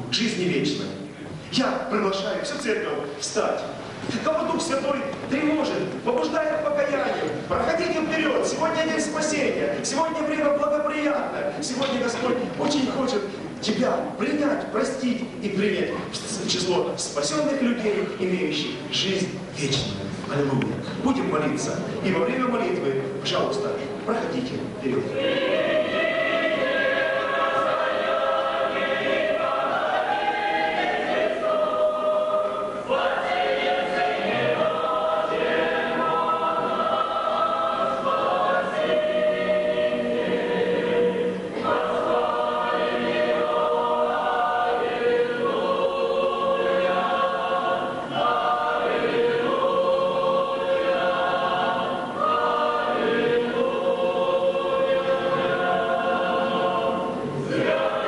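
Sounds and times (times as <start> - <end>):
choir singing a slow hymn: 24.9 - 58.0.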